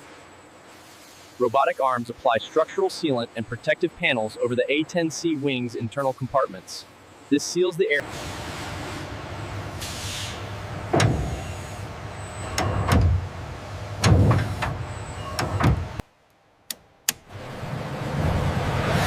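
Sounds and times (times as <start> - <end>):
factory machinery hum: 0.0 - 19.0
heavy mechanical clunks: 9.8 - 11.8, 12.4 - 16.0
sharp clicks: 16.7 - 17.3.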